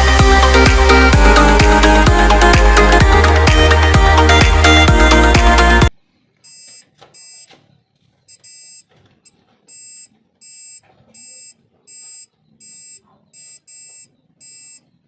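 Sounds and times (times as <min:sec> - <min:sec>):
truck reversing beeper: 0:09.7 - 0:14.8.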